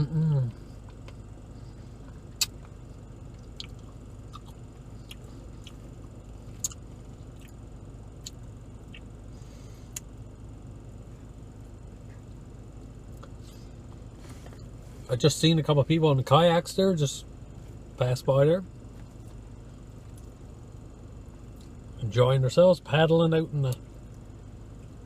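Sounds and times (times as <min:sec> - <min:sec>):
steady low hum: 0:00.0 - 0:25.0
mouth clicks and smacks: 0:02.0 - 0:05.8, 0:06.6 - 0:06.8, 0:08.2 - 0:09.1.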